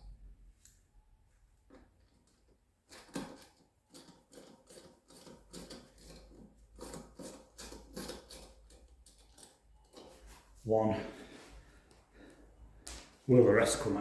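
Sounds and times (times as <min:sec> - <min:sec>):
hand tools clicking and scraping metal: 0:02.1 - 0:10.5.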